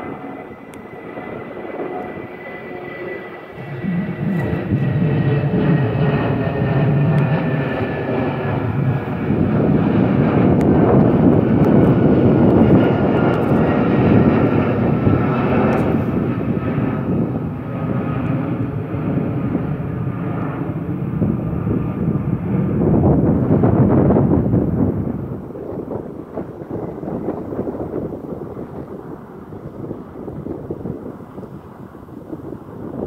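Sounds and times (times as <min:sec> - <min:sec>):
jet engines rumbling at takeoff: 0:00.0 - 0:33.0.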